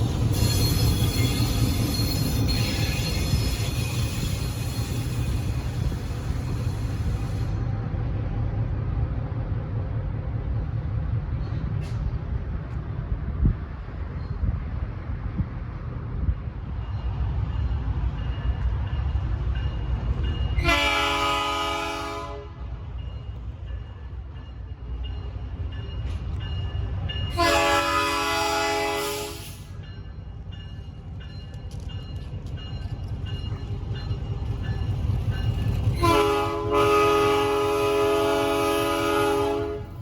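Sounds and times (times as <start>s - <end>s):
locomotive horn blasts: 20.6s - 22.6s, 27.3s - 29.5s, 36.0s - 40.0s.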